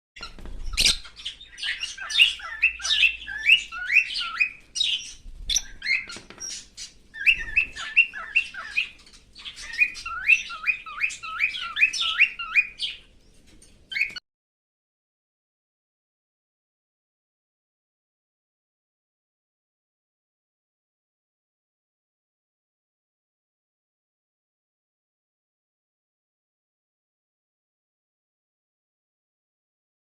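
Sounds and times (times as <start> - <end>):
cockatiel chirping: 0.2 - 13.1, 13.9 - 14.2.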